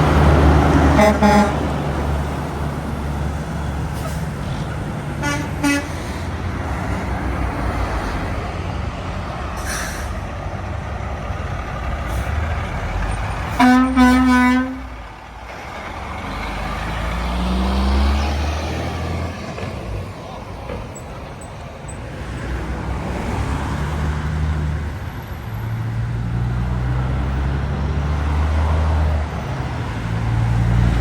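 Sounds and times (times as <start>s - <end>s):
highway traffic passing: 0.0s - 31.0s
truck engine approaching: 0.0s - 31.0s
loud horn blasts: 0.8s - 1.8s, 5.2s - 6.2s, 13.5s - 15.0s
horn short toots: 0.9s - 1.7s, 5.2s - 6.1s, 13.5s - 15.0s.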